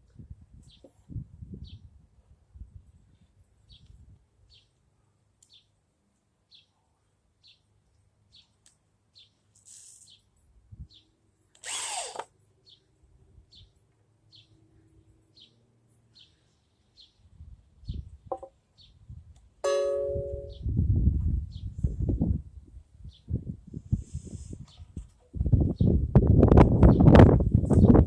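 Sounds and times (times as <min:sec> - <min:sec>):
power drill running: 0:11.6 - 0:12.3
faint high chirp: 0:19.6 - 0:20.8.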